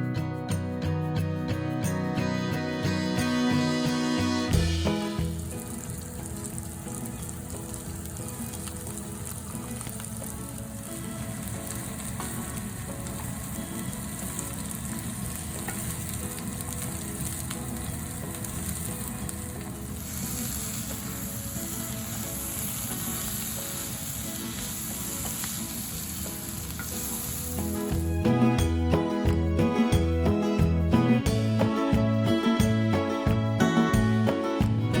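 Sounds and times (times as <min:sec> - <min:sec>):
food sizzling in a pan: 0:03.3 - 0:28.1.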